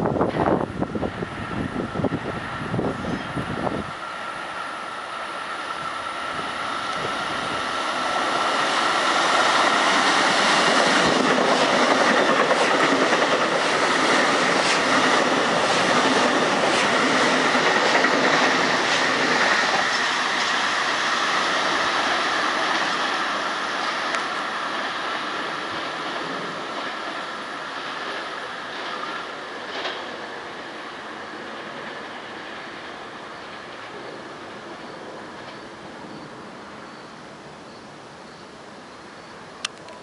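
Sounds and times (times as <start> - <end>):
train wheels rumbling on rail: 0.0 - 40.0
rapid clicks over rail joints: 29.6 - 30.2.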